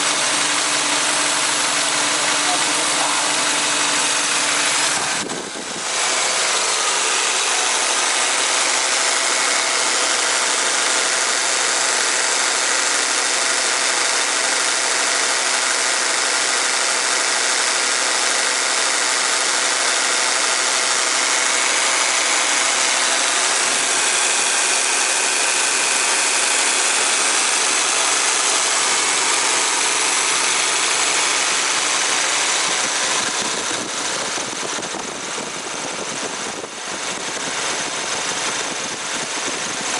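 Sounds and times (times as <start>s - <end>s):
compressor mechanical noise: 0.0s - 12.0s, 20.6s - 39.9s
car engine running: 0.0s - 39.9s.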